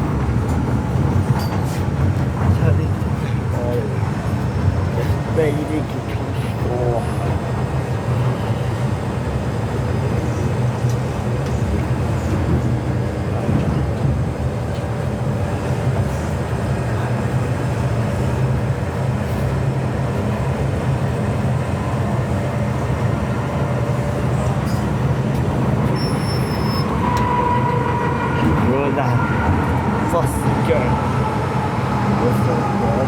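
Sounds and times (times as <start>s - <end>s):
train wheels rumbling: 0.0s - 33.0s.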